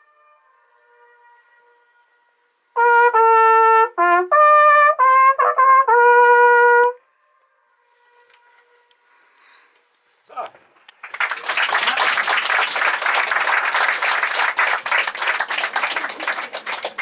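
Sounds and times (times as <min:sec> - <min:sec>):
trumpet playing: 0:00.0 - 0:07.0, 0:07.8 - 0:09.1
trumpet echoes off cliffs: 0:00.0 - 0:09.4.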